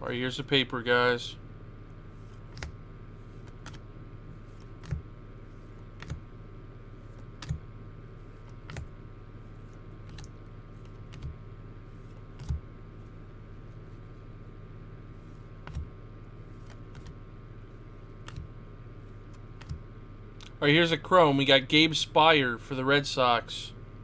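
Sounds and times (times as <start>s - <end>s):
electrical hum: 0.0s - 24.0s
paper cards flipping: 15.3s - 15.9s, 16.5s - 17.2s.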